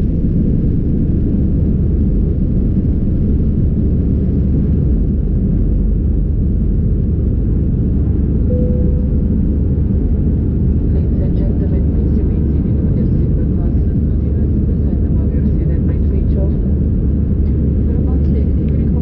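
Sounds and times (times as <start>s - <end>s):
airplane cabin engine rumble: 0.0s - 19.0s
brief thin tone: 8.5s - 9.3s.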